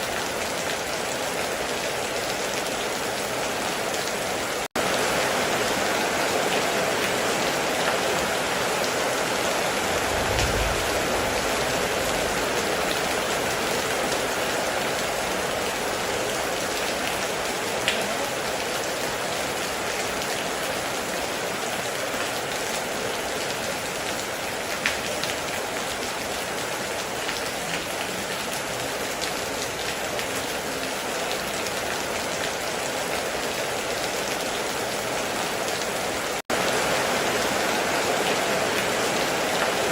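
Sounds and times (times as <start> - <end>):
heavy rain falling: 0.0 - 39.9
low rumble: 9.8 - 13.2.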